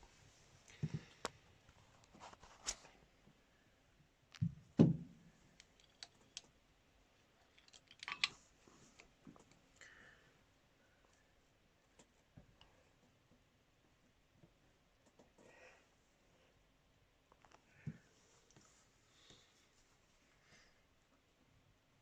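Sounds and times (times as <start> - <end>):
metal clicks of hand tools: 7.6 - 8.3.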